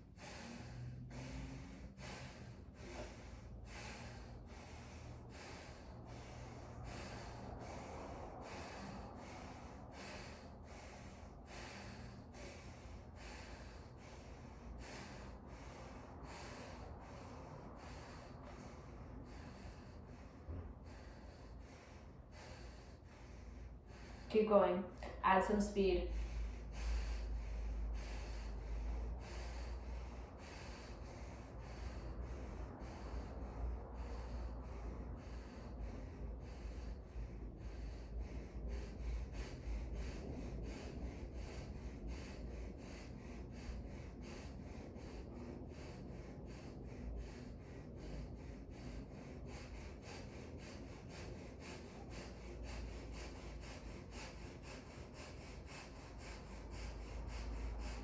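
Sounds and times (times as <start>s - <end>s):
fast breathing through nose: 0.0s - 24.7s, 26.0s - 58.0s.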